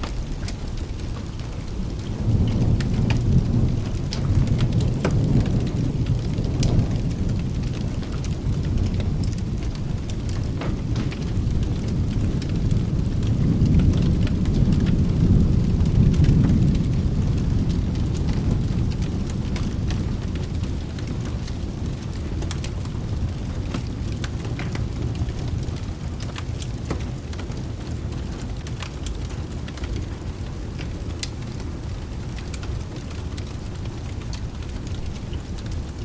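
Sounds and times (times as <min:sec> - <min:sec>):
rolling thunder: 0:00.0 - 0:36.0
steady rain: 0:00.0 - 0:36.0
fireplace crackling: 0:29.0 - 0:36.0.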